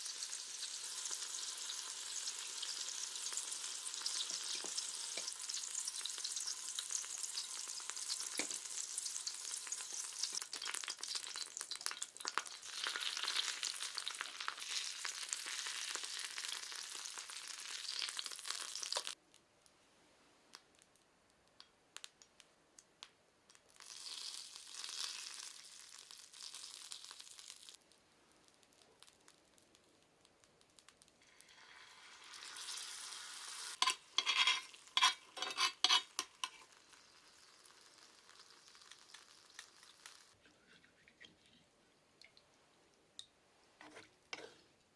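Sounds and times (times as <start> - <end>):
tofu sizzling in a pan: 0.0 - 19.2, 23.6 - 27.9, 30.7 - 40.4.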